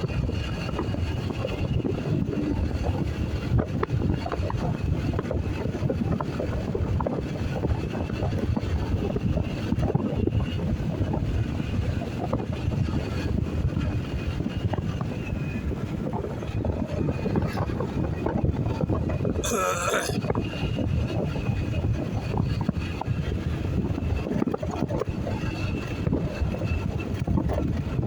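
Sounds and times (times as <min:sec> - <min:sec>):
wind buffeting microphone: 0:00.0 - 0:19.4, 0:20.2 - 0:28.0.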